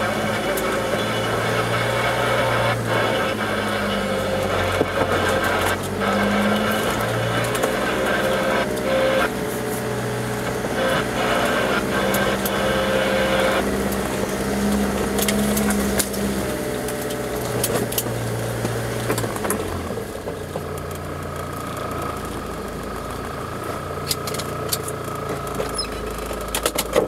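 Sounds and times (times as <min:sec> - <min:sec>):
vehicle engine running slowly: 0:00.0 - 0:27.0
vehicle clicks and knocks: 0:24.0 - 0:27.0.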